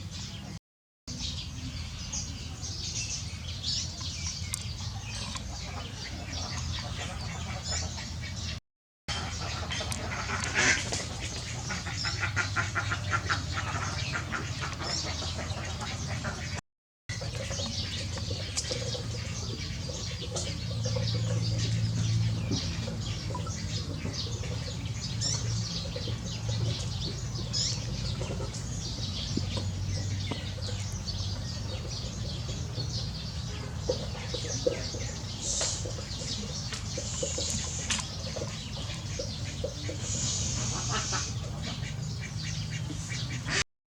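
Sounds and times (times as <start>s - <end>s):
fowl calling and chirping: 5.4s - 16.6s, 33.9s - 43.6s.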